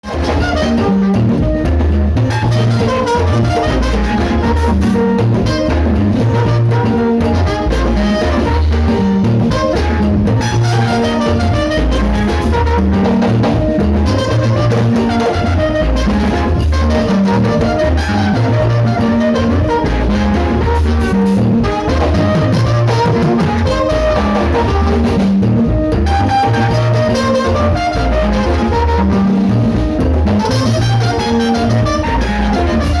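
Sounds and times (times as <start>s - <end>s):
drums: 0.0s - 33.0s
loud music with heavy bass: 0.0s - 33.0s.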